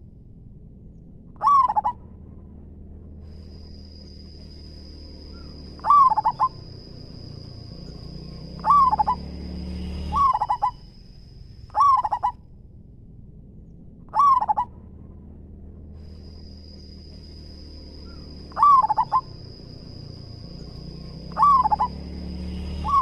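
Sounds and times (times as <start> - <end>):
dove cooing: 1.4 - 2.0, 5.4 - 6.9, 8.0 - 9.3, 10.1 - 10.8, 11.7 - 12.4, 14.1 - 14.7, 18.0 - 20.0, 20.6 - 22.0, 22.8 - 23.0.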